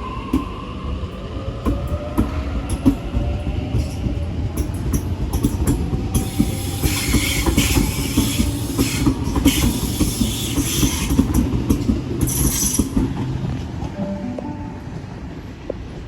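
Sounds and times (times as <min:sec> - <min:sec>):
train rumbling along tracks: 0:00.0 - 0:16.0
wheel and rail hiss: 0:06.1 - 0:13.1.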